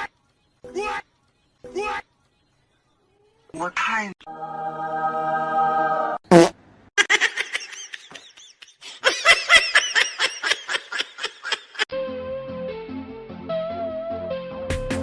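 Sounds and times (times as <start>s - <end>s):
high-pitched laughter: 7.0s - 11.9s.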